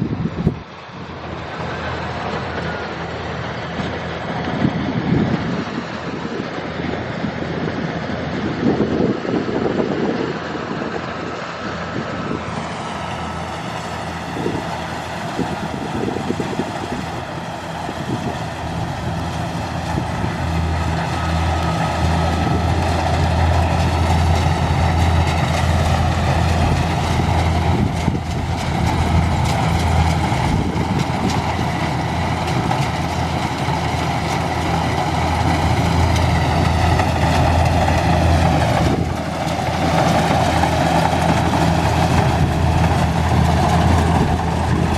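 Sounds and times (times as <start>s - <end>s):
combine harvester diesel engine: 0.0s - 44.9s.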